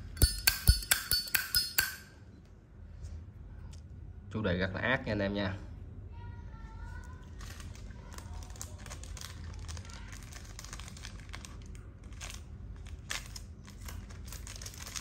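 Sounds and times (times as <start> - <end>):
steady low hum: 0.0 - 15.0
rustling and crinkling: 6.8 - 15.0.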